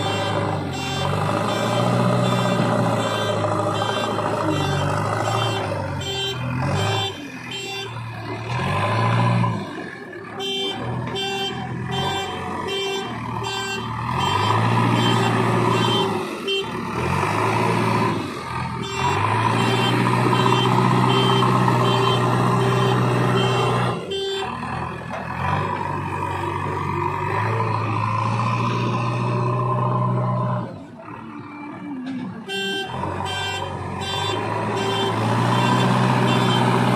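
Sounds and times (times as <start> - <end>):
alarm beeping: 0.0 - 8.4, 18.8 - 24.6
diesel engine revving: 0.0 - 36.9.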